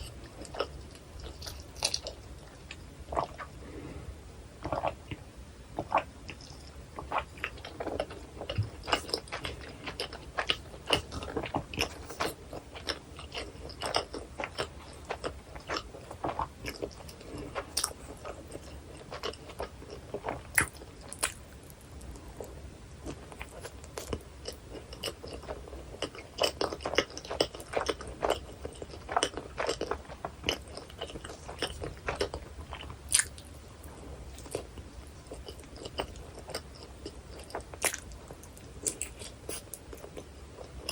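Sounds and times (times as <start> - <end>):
person chewing food: 0.0 - 4.0, 4.6 - 5.2, 5.8 - 40.9.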